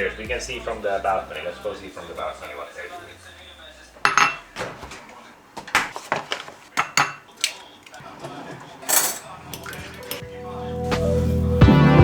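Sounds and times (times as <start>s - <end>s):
dishes and cutlery clinking: 4.0s - 10.3s.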